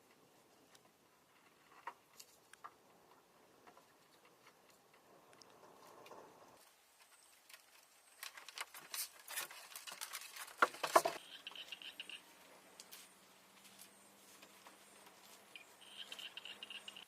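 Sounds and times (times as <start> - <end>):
faint steady hum: 11.0 - 17.0.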